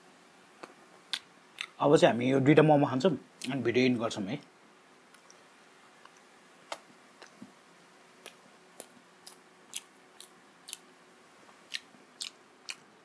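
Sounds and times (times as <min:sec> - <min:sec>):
chewing with wet mouth clicks: 0:06.0 - 0:07.5, 0:08.2 - 0:10.9, 0:11.7 - 0:12.9.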